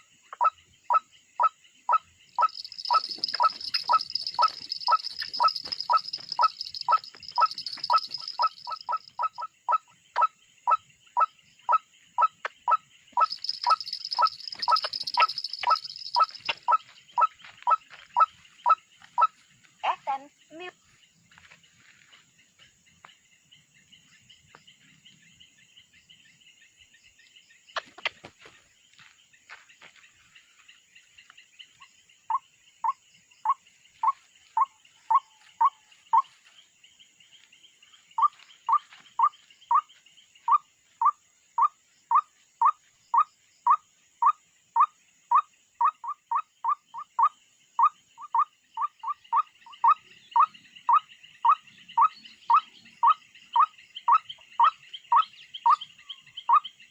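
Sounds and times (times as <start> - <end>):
steady high chirring: 2.4 - 9.4, 13.2 - 16.8.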